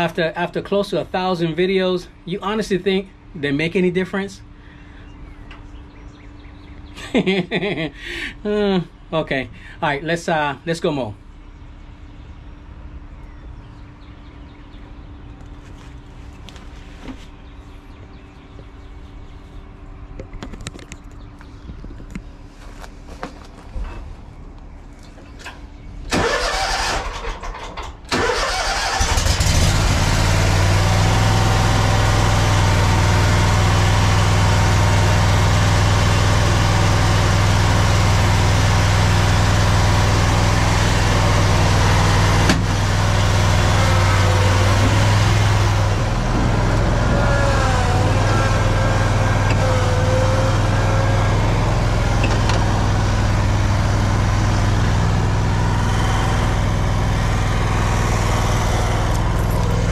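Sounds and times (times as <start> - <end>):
lawn mower engine starting and running: 25.2 - 59.9.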